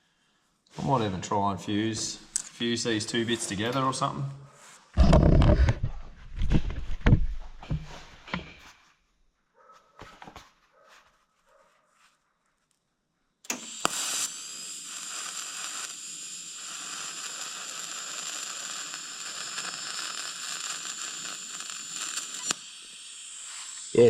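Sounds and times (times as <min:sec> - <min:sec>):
welding arc crackling hiss: 0:13.5 - 0:24.0.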